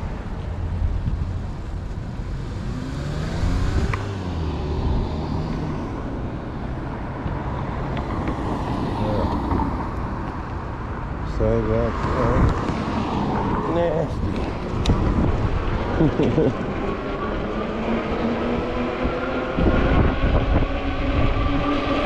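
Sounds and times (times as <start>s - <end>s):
traffic noise: 0.0s - 22.0s
motor vehicle passing: 2.2s - 10.7s, 11.3s - 22.0s
wind buffeting microphone: 11.8s - 22.0s.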